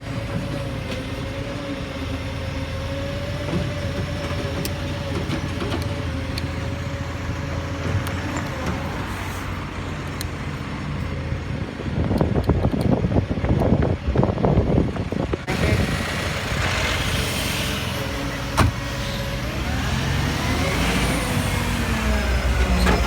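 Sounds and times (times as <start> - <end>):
diesel engine running: 0.0 - 23.0
steady engine whine: 0.1 - 23.0
loud rough noise: 14.1 - 23.0.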